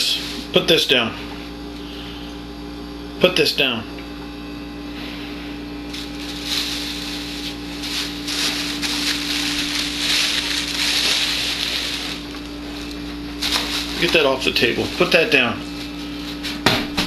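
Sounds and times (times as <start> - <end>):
electrical hum: 0.0 - 17.0
rustling and crunching: 4.9 - 16.7.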